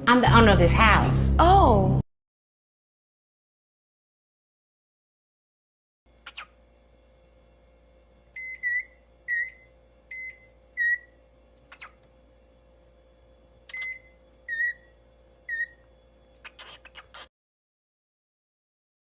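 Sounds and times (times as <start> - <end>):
bird beep-like whistled calls: 8.4 - 12.0, 13.7 - 14.9, 15.5 - 15.8.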